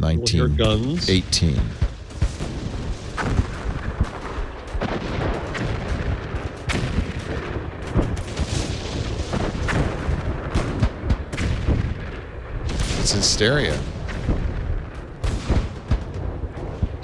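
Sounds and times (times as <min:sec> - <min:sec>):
continuous low rumble: 0:00.0 - 0:02.7
artillery guns firing: 0:01.8 - 0:17.0.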